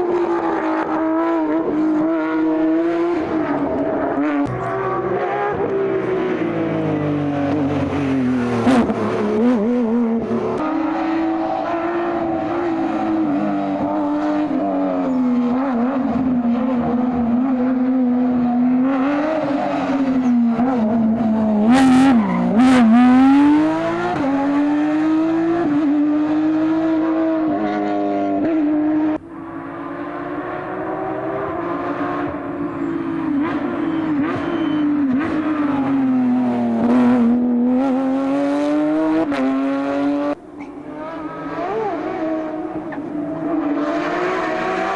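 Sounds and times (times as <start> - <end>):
sports car engine revving: 20.6 - 27.4, 29.0 - 44.9.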